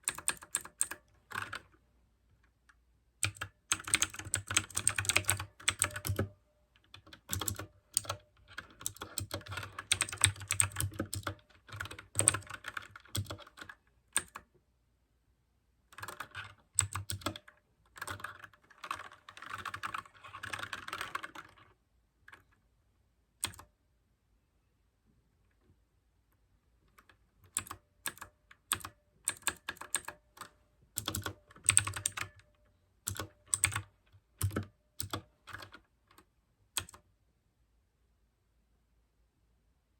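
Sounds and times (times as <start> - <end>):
mechanical keyboard typing: 0.0 - 1.7, 3.2 - 14.5, 15.9 - 21.6, 23.4 - 23.7, 27.0 - 37.0.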